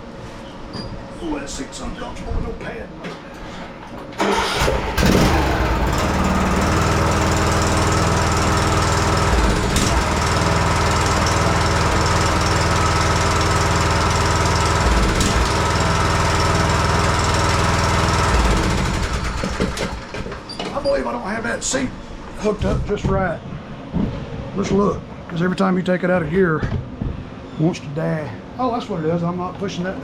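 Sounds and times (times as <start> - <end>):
mower engine running: 4.2 - 20.2.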